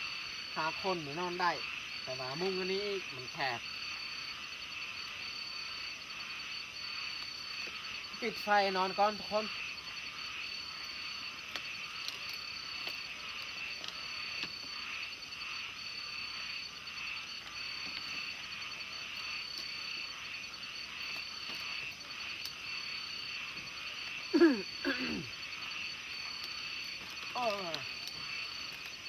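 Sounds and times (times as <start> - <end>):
frogs trilling: 0.0 - 29.0
high pulsed frog trill: 0.0 - 29.0
loud downward frog calls: 0.0 - 29.0.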